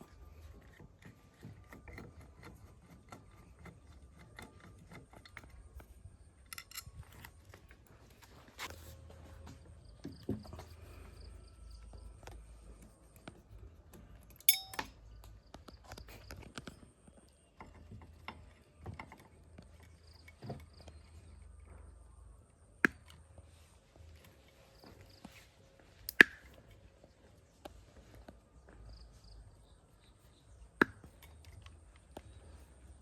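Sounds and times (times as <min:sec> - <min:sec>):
tools and metal parts clicking: 0:00.5 - 0:07.8, 0:13.9 - 0:15.0.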